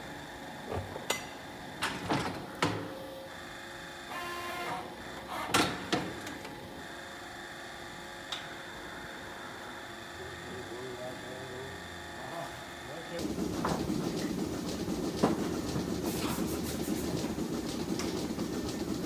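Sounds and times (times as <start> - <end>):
machine hum: 8.7 - 19.0
sharp knocks and clatters: 13.2 - 19.0.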